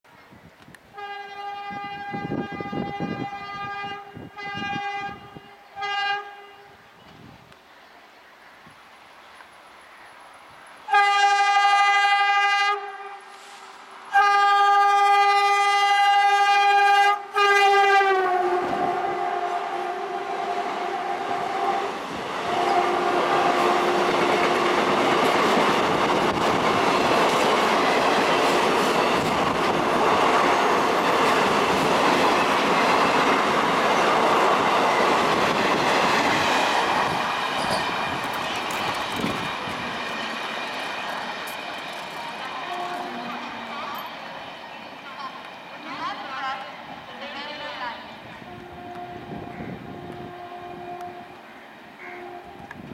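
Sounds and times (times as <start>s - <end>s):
diesel locomotive horn: 0.9s - 6.8s, 10.9s - 13.5s, 14.1s - 25.2s, 42.4s - 44.0s, 47.6s - 51.4s, 52.0s - 52.9s
train coaches rumbling past: 0.9s - 52.9s
wheels clattering over rail joints: 35.3s - 44.4s.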